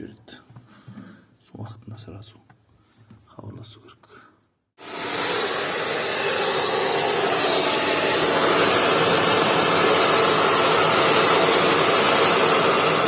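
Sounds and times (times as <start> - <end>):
rushing air: 4.8 - 13.0.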